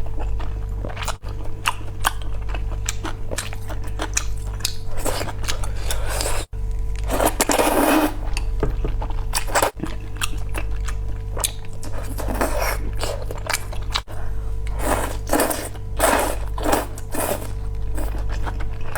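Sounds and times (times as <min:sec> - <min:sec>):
steady low hum: 0:00.0 - 0:18.9
wet chewing sounds: 0:00.0 - 0:18.9
person slurping noodles: 0:05.0 - 0:08.4, 0:14.8 - 0:18.2.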